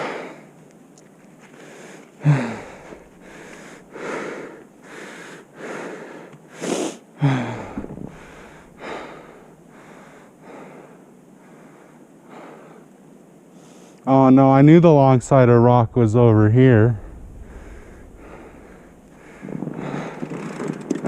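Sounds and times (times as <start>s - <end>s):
person breathing hard: 0.0s - 0.6s, 1.5s - 12.9s, 17.0s - 20.6s
person groaning: 2.2s - 3.5s.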